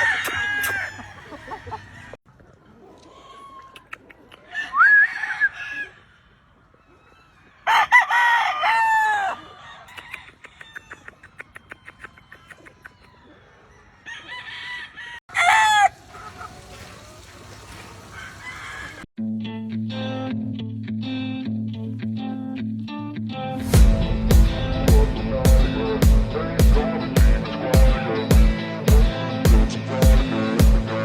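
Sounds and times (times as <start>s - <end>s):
roosters crowing: 0.0s - 2.2s, 4.4s - 19.1s.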